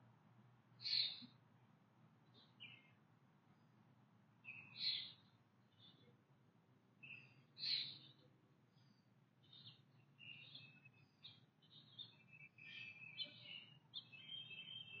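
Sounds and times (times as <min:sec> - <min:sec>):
small birds chirping: 0:00.8 - 0:01.4, 0:02.2 - 0:03.8, 0:04.4 - 0:06.2, 0:07.0 - 0:15.0.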